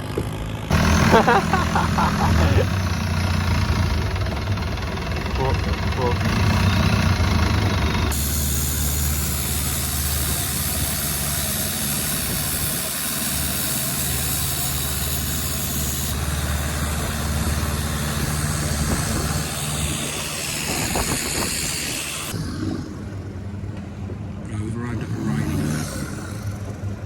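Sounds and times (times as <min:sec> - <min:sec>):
boat engine running: 0:00.0 - 0:27.0
wind and water hiss: 0:08.1 - 0:24.3.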